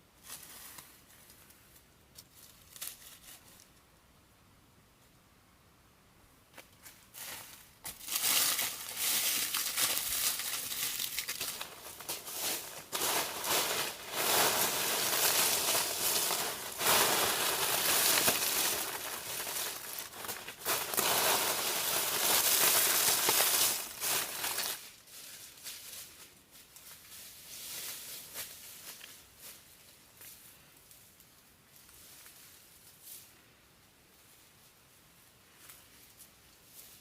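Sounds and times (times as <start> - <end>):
dry plant material crunching: 7.2 - 25.6.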